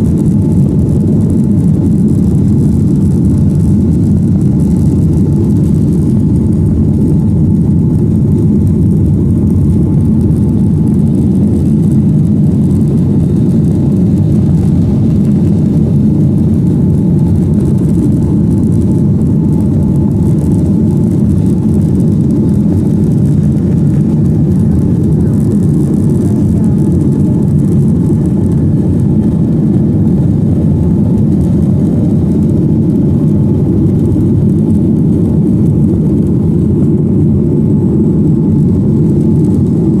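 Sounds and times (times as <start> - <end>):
jet engine cabin rumble: 0.0 - 40.0.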